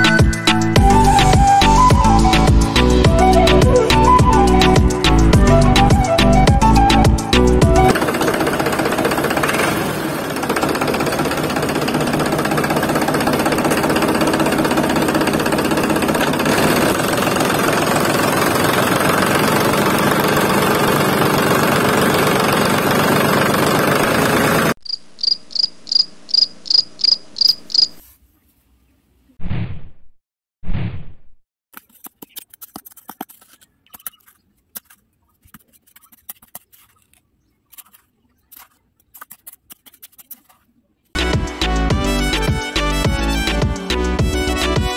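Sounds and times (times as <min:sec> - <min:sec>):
tractor engine knocking: 0:07.9 - 0:24.8
cricket chirping: 0:24.8 - 0:28.0.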